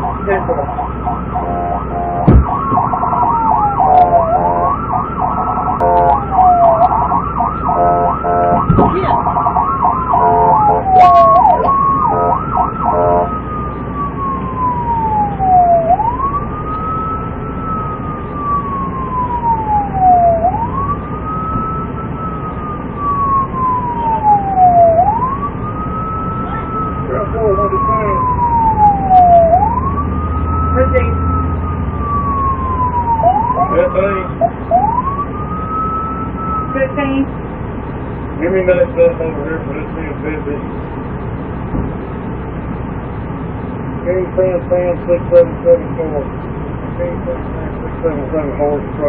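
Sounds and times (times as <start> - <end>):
yelping siren: 0.0 - 37.3
police siren slow wail: 0.0 - 41.6.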